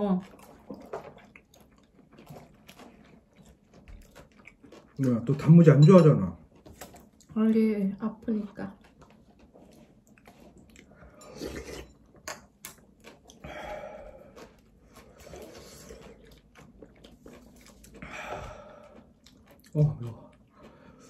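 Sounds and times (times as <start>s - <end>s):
people chewing with mouth smacks: 0.0s - 21.0s
breathing: 13.4s - 14.4s, 18.0s - 19.1s, 20.5s - 21.0s.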